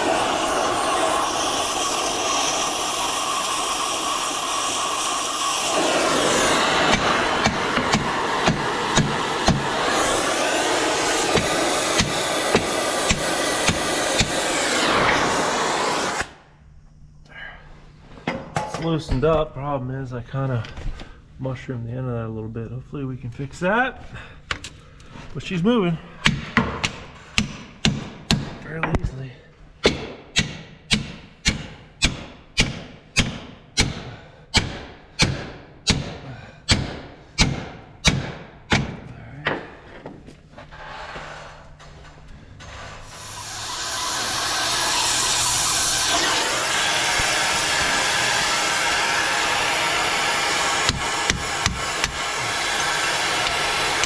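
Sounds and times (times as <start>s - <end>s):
loud steady noise: 0.0s - 16.4s, 43.0s - 54.0s.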